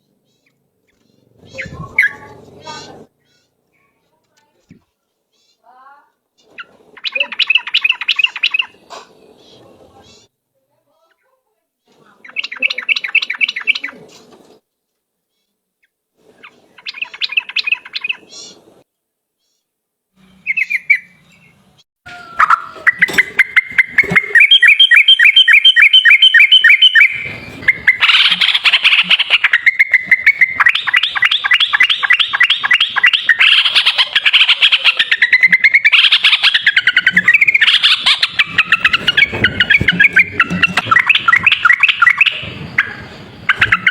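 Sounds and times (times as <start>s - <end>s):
bulbul singing rapid notes: 22.3s - 43.9s.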